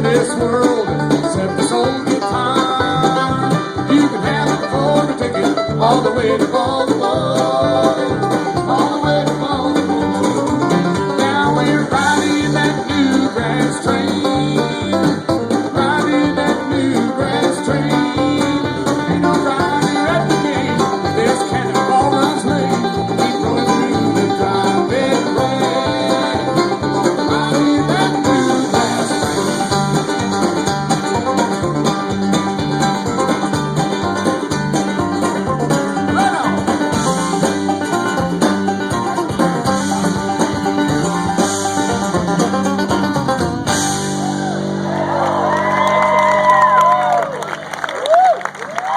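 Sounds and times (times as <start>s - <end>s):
banjo: 0.0s - 45.5s
guitar: 0.0s - 48.9s
walking bass: 0.0s - 48.9s.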